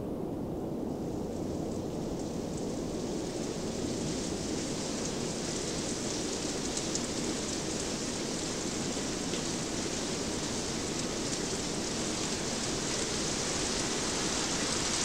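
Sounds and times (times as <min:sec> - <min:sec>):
rain hissing: 0:03.2 - 0:15.0.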